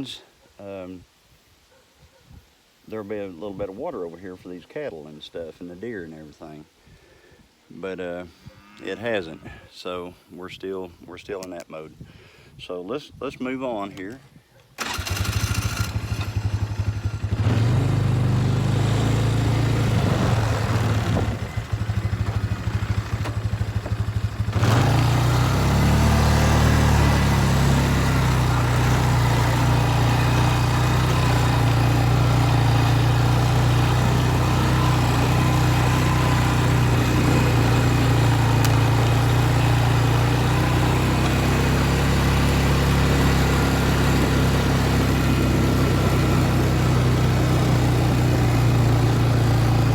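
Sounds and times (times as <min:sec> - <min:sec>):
farm vehicle engine running: 0:14.8 - 0:49.9.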